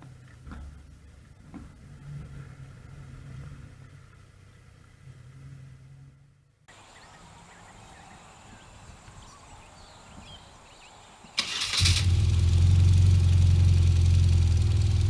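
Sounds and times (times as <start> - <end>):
motorcycle engine cranking: 11.4 - 15.0
motorcycle engine idling: 11.4 - 15.0.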